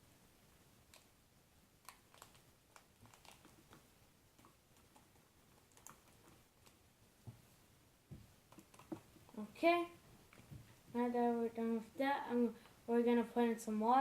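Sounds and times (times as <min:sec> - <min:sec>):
small clicks and taps: 0:08.1 - 0:09.4.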